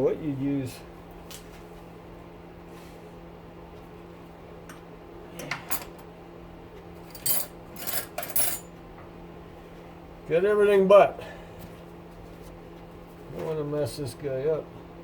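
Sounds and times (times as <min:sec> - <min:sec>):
steady low hum: 0:00.0 - 0:15.0
metal tools clinking: 0:07.1 - 0:08.7.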